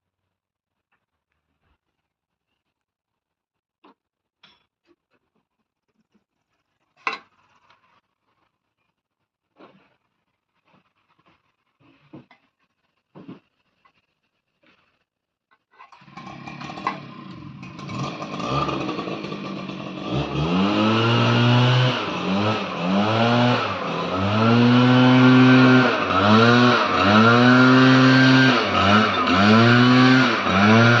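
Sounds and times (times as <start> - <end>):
lawn mower engine running: 15.9 - 31.0.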